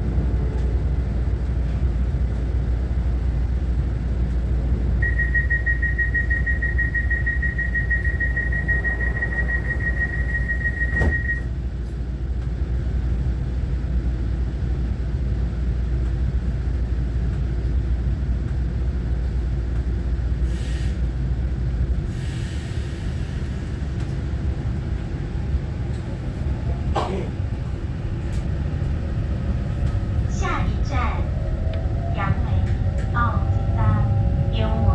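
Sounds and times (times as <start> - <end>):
train rumbling on track: 0.0 - 34.9
high steady whine: 5.0 - 11.5.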